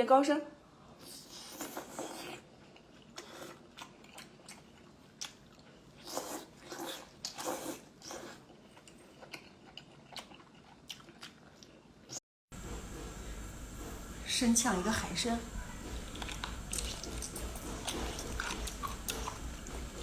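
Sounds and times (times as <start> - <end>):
person chewing crunchy food: 1.0 - 12.2, 15.9 - 20.0.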